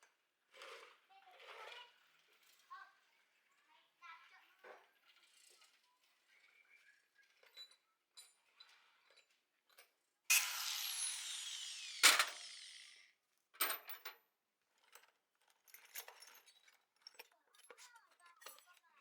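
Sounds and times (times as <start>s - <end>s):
power tool winding down: 10.3s - 13.0s.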